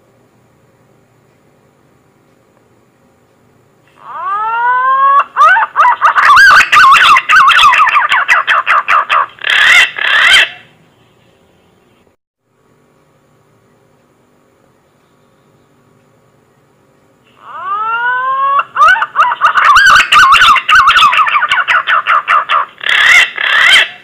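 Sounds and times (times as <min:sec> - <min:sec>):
pigeon whistled song: 0:04.2 - 0:10.6, 0:17.5 - 0:24.0.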